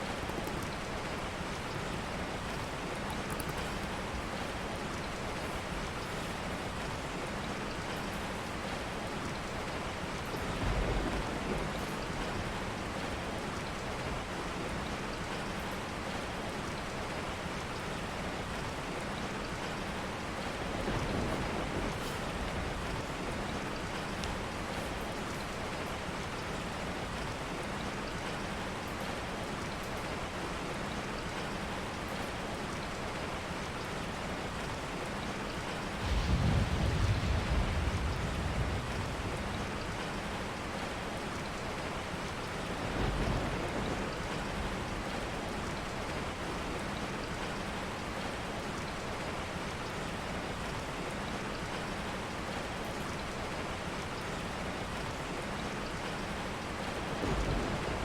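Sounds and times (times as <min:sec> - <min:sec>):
steady rain falling: 0:00.0 - 0:58.0
thunder rumbling: 0:10.4 - 0:13.0, 0:35.7 - 0:40.9, 0:42.7 - 0:45.7, 0:56.9 - 0:58.0.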